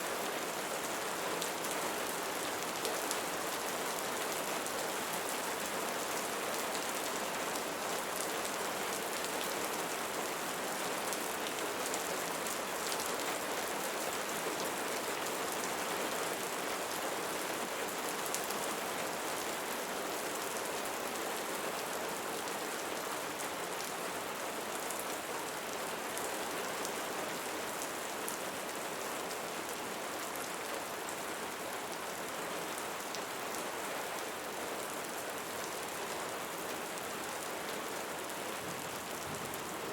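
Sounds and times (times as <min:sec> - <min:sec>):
steady rain hissing: 0:20.9 - 0:39.9.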